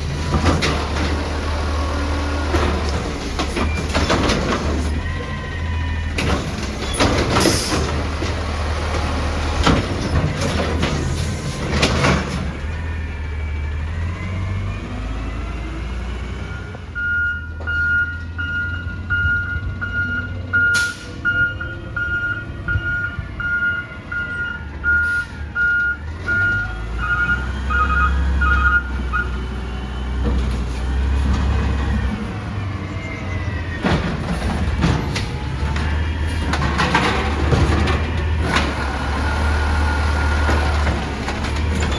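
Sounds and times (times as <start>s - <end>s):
diesel truck engine running: 0.0s - 41.9s
clanking and banging: 2.4s - 5.3s, 6.0s - 12.6s, 33.6s - 39.6s
reverse alarm beeping: 16.5s - 29.3s.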